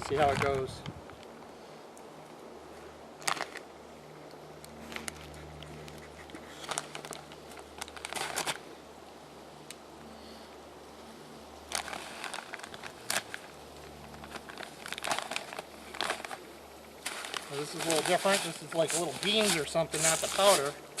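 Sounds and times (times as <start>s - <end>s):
bag crinkling and rustling: 0.0s - 0.7s, 3.2s - 3.7s, 4.8s - 8.7s, 11.7s - 21.0s.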